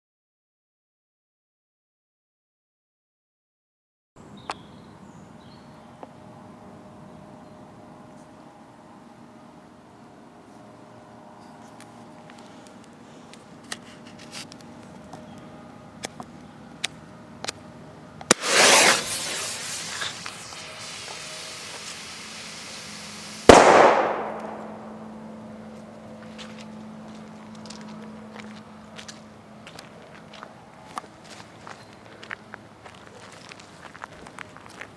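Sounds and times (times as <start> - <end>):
grenade bang: 18.3 - 19.8, 23.5 - 25.1
fuse hissing: 18.3 - 25.0.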